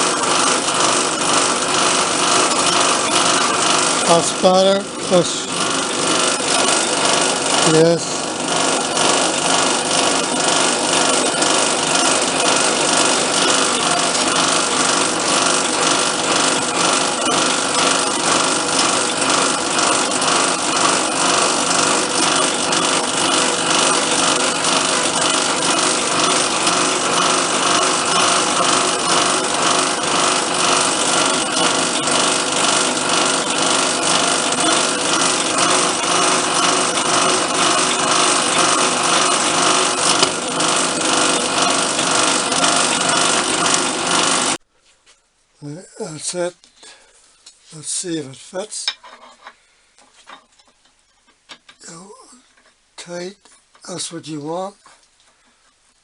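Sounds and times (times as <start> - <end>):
power tool grinding metal: 0.0 - 44.6.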